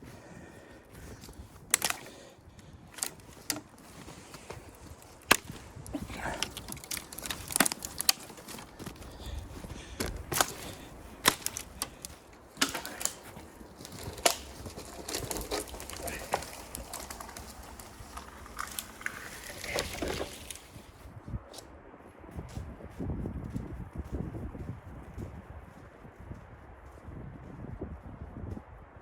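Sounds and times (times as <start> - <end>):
wood knocking and cracking: 1.7 - 2.0, 2.9 - 9.2, 10.0 - 20.8.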